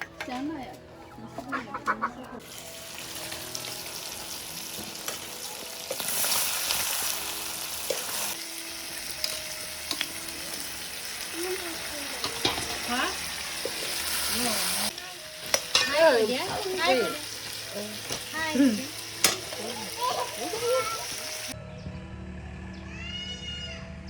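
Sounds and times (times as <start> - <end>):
food sizzling in a pan: 2.4 - 21.6
utensil clicking against a pan: 12.2 - 12.9, 15.4 - 16.7, 19.2 - 19.7.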